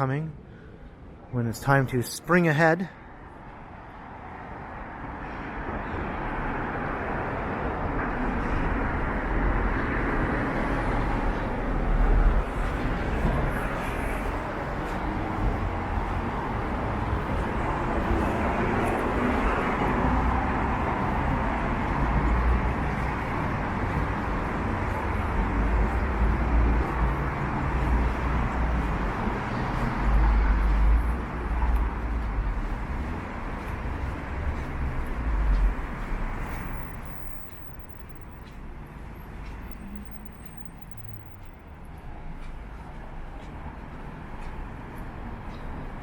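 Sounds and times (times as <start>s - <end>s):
city street traffic: 0.0s - 46.0s.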